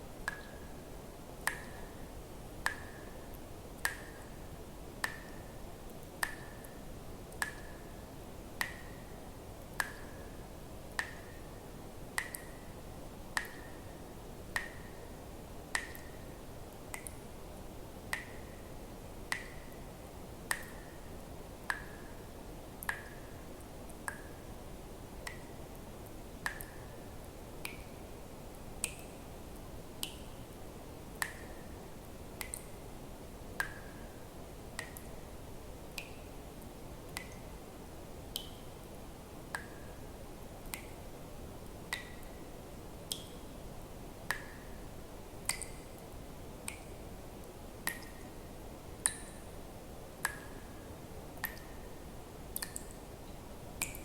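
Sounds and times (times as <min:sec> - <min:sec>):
faint steady hiss: 0:00.0 - 0:54.0
water drops plinking into water: 0:00.2 - 0:00.8, 0:01.4 - 0:02.0, 0:02.6 - 0:03.1, 0:03.8 - 0:04.4, 0:05.0 - 0:07.9, 0:08.6 - 0:09.1, 0:09.7 - 0:11.5, 0:12.2 - 0:12.7, 0:13.4 - 0:15.0, 0:15.7 - 0:16.3, 0:16.9 - 0:17.2, 0:18.1 - 0:18.6, 0:19.3 - 0:19.8, 0:20.5 - 0:21.0, 0:21.7 - 0:22.2, 0:22.8 - 0:23.3, 0:24.0 - 0:24.4, 0:26.4 - 0:26.9, 0:27.6 - 0:28.0, 0:31.2 - 0:31.7, 0:32.4 - 0:32.7, 0:33.6 - 0:34.1, 0:34.8 - 0:35.2, 0:37.1 - 0:37.5, 0:38.3 - 0:38.7, 0:40.6 - 0:41.0, 0:41.9 - 0:42.4, 0:43.1 - 0:43.5, 0:44.3 - 0:44.7, 0:45.4 - 0:46.0, 0:46.6 - 0:47.0, 0:47.8 - 0:48.3, 0:49.0 - 0:49.5, 0:50.2 - 0:50.6, 0:51.4 - 0:51.8, 0:52.5 - 0:53.1, 0:53.8 - 0:54.0.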